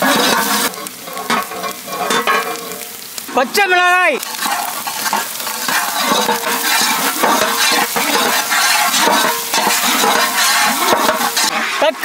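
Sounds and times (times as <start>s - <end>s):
wooden ladle scraping a pot: 0.0s - 2.9s, 4.2s - 11.9s
vegetables sizzling in hot oil: 0.0s - 12.0s.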